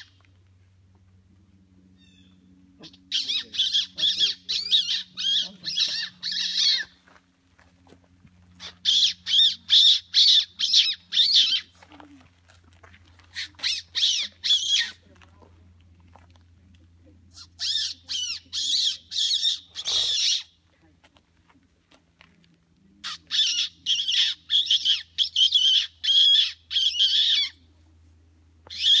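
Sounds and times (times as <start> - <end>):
person making squeaky bird calls: 2.0 - 7.0, 8.6 - 11.8, 13.2 - 15.0, 17.3 - 20.5, 23.0 - 27.5, 28.7 - 29.0.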